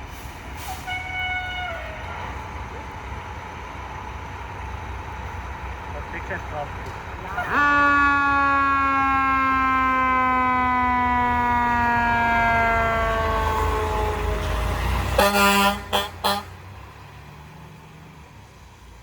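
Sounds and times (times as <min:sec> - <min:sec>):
fire engine siren wailing: 0:00.5 - 0:05.8, 0:07.2 - 0:16.9
air horn blasts: 0:07.5 - 0:10.9, 0:15.2 - 0:16.6.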